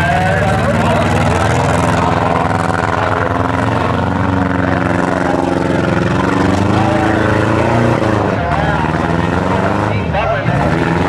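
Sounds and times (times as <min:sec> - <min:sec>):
car engines droning: 0:00.0 - 0:11.0.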